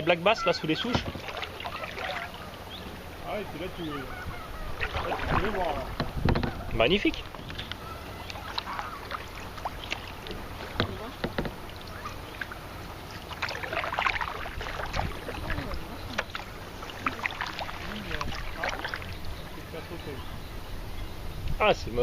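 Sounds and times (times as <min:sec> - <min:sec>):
paddle splashing in water: 0:00.4 - 0:19.9.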